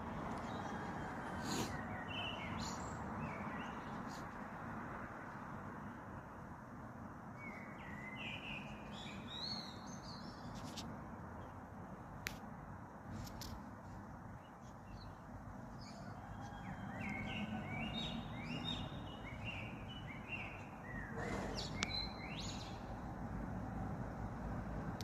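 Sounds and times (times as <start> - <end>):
bird chirping: 0.4 - 4.3, 7.4 - 10.8, 14.4 - 22.9.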